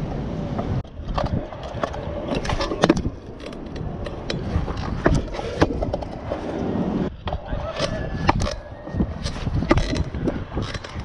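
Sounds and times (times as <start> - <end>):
scooter wheels rolling: 0.0 - 11.0.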